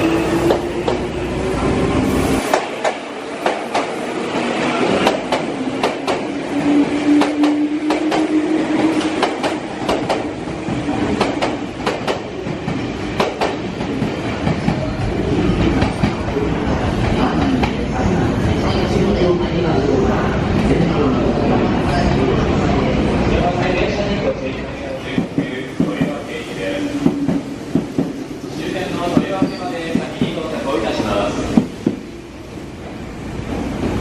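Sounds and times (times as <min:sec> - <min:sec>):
train wheels clacking over rail joints: 0:09.0 - 0:10.3, 0:11.2 - 0:14.8.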